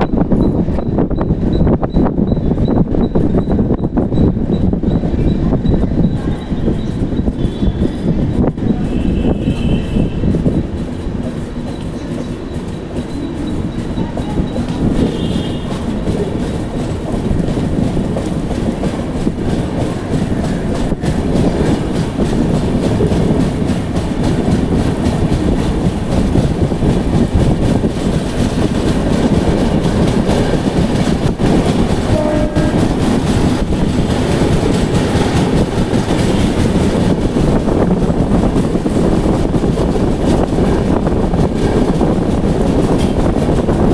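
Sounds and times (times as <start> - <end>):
train rumbling on rails: 0.0 - 43.9
train horn: 8.9 - 10.3, 15.0 - 15.8, 32.0 - 33.0.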